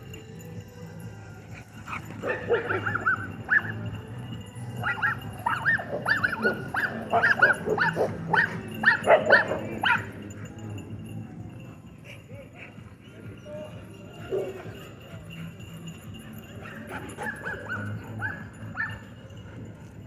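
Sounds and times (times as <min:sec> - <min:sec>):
dog barking and yipping: 0:01.8 - 0:04.0, 0:04.7 - 0:10.2, 0:14.3 - 0:15.5, 0:16.6 - 0:19.1.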